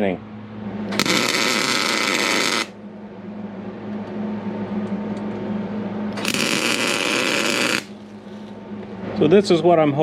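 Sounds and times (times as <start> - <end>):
steady low hum: 0.0 - 10.0
air ratchet hissing: 1.0 - 2.7, 6.2 - 8.0.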